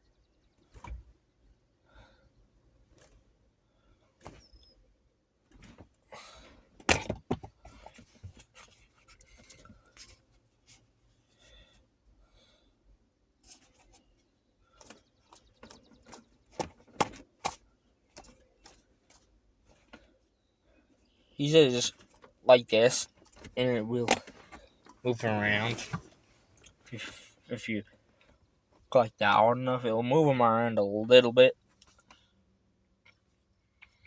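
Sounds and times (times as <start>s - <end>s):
pouches shifting in a can: 23.2s - 27.2s.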